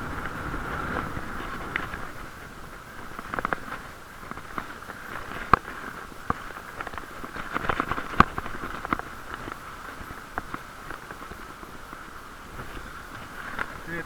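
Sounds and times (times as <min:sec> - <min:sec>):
wind rushing: 0:00.0 - 0:02.8.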